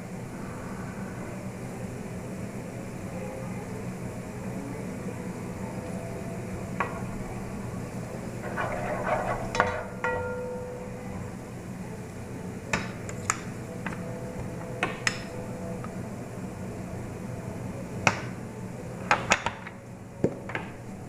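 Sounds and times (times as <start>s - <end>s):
steady low hum: 0.0s - 21.0s
spatula scraping food in a pan: 8.4s - 10.0s.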